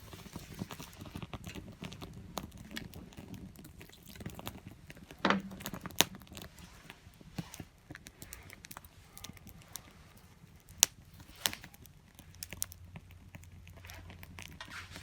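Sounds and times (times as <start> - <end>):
wood fire crackling: 0.0 - 15.0
knock: 5.3 - 5.6.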